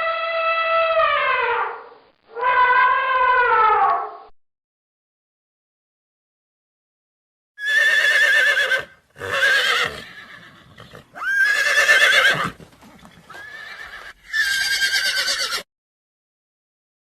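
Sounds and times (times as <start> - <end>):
horse whinnying: 7.6 - 15.7.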